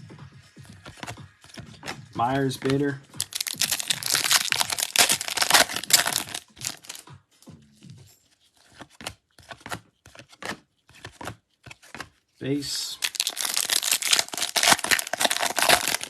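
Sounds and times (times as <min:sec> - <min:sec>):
cards clicking and rustling: 0:00.6 - 0:07.2, 0:08.2 - 0:16.0
foil pack tearing and crinkling: 0:02.3 - 0:07.0, 0:13.0 - 0:16.0.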